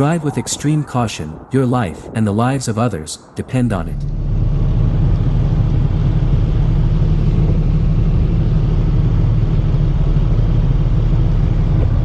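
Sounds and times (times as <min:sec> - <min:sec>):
vehicle engine and road rumble: 0:03.6 - 0:12.0.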